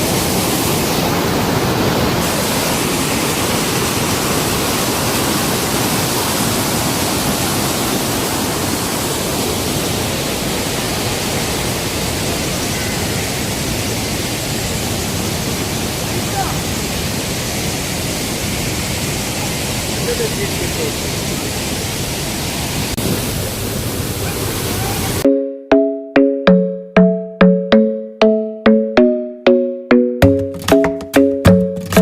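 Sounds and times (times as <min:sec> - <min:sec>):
waterfall rushing: 0:00.0 - 0:25.2.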